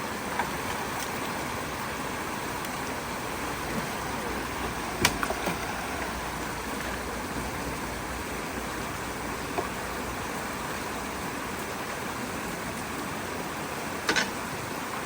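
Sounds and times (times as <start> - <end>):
creek water rushing through culvert: 0.0 - 15.0.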